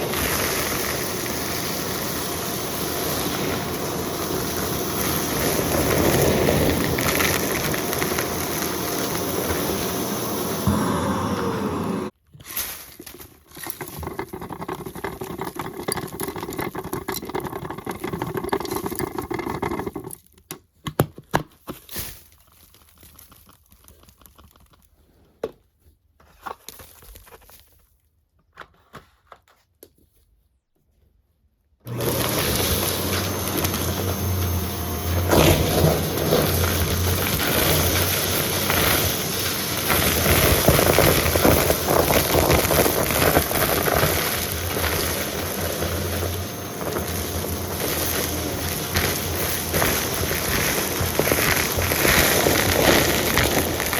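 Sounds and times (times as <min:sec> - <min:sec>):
vacuum cleaner running: 0:00.0 - 0:12.2, 0:31.9 - 0:53.9
clicks and crackles: 0:12.4 - 0:25.0, 0:32.6 - 0:53.9.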